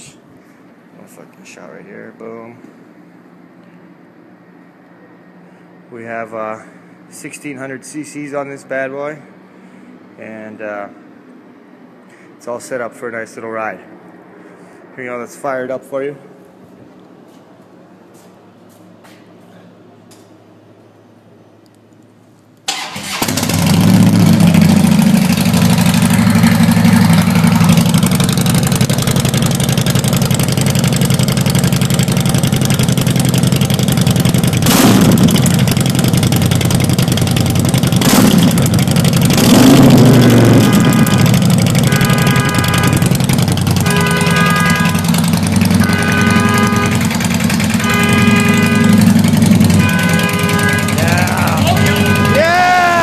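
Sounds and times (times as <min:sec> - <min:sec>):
motorcycle engine running: 0:23.1 - 0:53.0.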